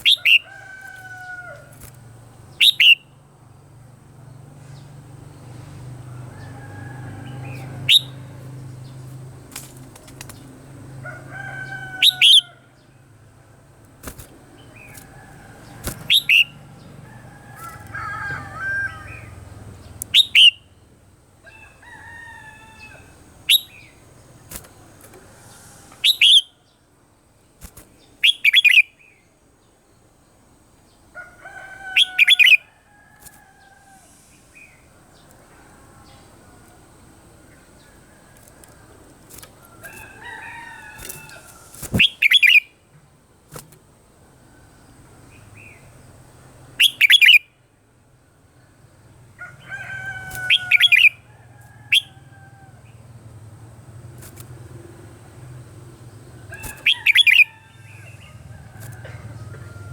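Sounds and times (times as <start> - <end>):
bird singing bright phrases: 2.5 - 3.2, 7.3 - 9.1, 15.7 - 16.6, 19.0 - 20.9, 23.5 - 24.1, 27.9 - 29.8, 41.0 - 42.8, 46.8 - 47.5, 56.1 - 58.1
sharp bird clicks: 13.8 - 16.5, 19.9 - 20.6, 40.9 - 42.6, 56.5 - 57.5
soft bird warbling: 24.5 - 26.5, 39.3 - 42.7, 56.4 - 59.9.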